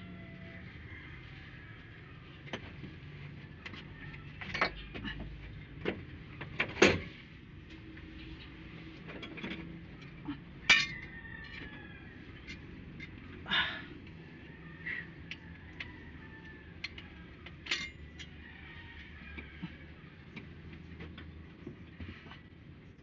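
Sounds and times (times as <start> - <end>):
metal tools clinking on engine parts: 9.1 - 11.7, 16.8 - 18.4.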